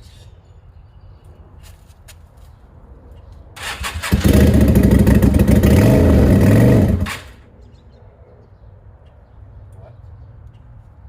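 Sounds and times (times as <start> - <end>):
motorcycle engine running loud: 4.0 - 7.3.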